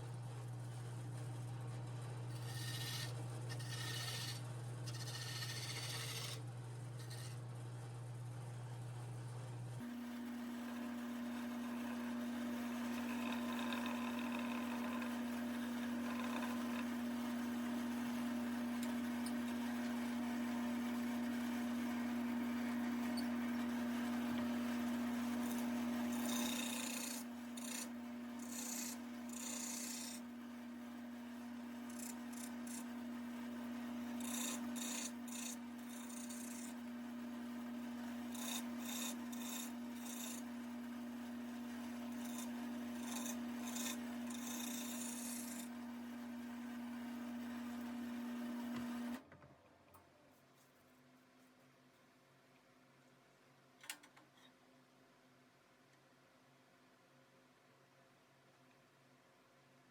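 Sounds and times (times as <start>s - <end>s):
wood lathe humming: 2.3s - 6.4s, 7.0s - 7.4s, 10.2s - 49.2s
tool scraping spinning wood: 2.3s - 7.4s, 10.4s - 30.4s, 31.1s - 46.7s.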